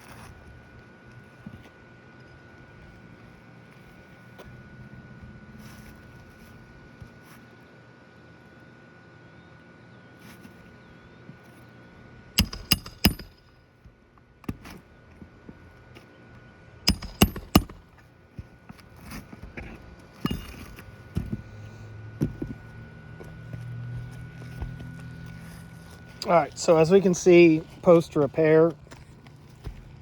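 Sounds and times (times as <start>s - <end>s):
hammer driving nails into shingle: 12.4s - 13.4s, 16.9s - 17.9s, 20.2s - 21.5s.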